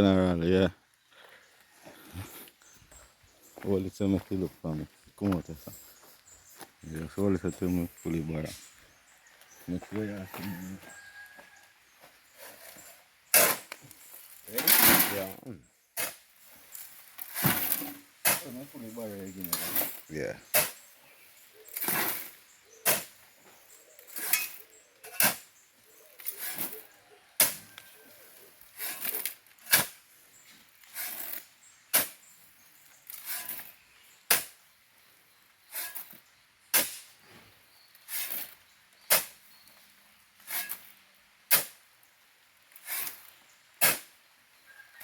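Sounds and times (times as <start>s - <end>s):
shovel scraping sand and gravel: 12.3s - 34.7s, 35.6s - 39.7s, 40.4s - 42.0s, 42.6s - 44.3s.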